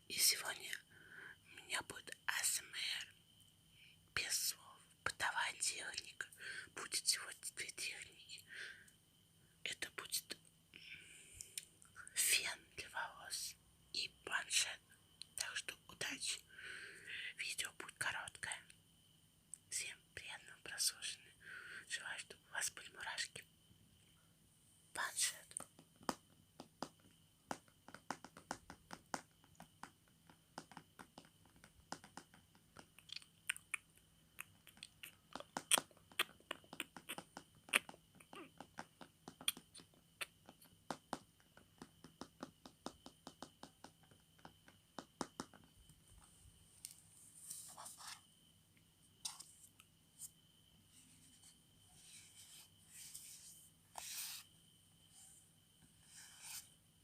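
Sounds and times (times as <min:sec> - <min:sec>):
fingernail clicks on tablet: 0:30.5 - 0:32.9
swishing strokes on tablet: 0:50.9 - 0:54.5, 0:56.0 - 0:56.7.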